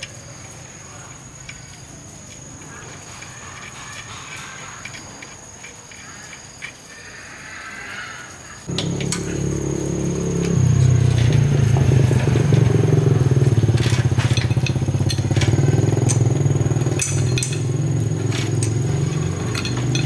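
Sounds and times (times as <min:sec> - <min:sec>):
motorcycle engine starting and running: 0:08.7 - 0:20.0.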